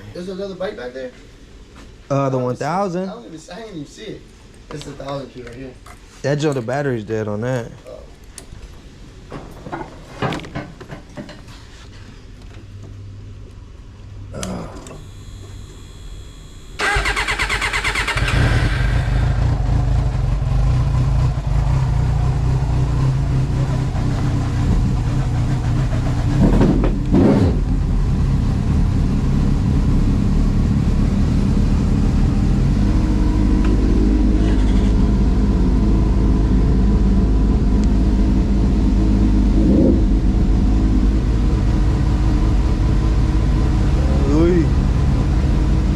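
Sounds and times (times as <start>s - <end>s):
electric starter whine: 14.4s - 20.0s
motorcycle engine idling: 16.8s - 26.4s.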